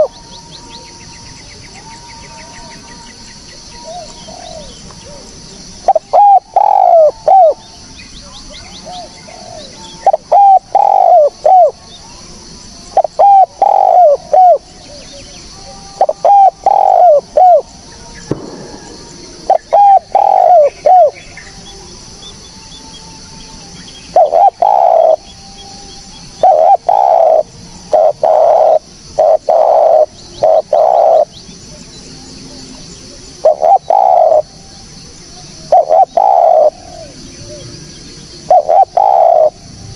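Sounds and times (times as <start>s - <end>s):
dove cooing: 0.0s - 1.0s, 1.7s - 7.7s, 8.5s - 11.9s, 12.9s - 17.7s, 18.4s - 21.3s, 24.1s - 31.4s, 32.5s - 34.7s, 35.6s - 39.9s.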